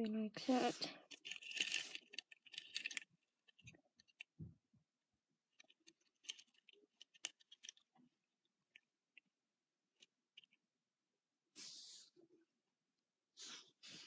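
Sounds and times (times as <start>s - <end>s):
plastic toys clicking: 1.0s - 4.4s, 5.6s - 8.0s.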